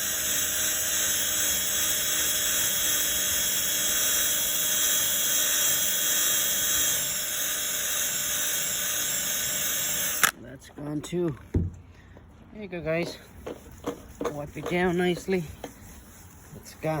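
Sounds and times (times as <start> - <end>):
electric drill polishing: 0.0 - 10.3.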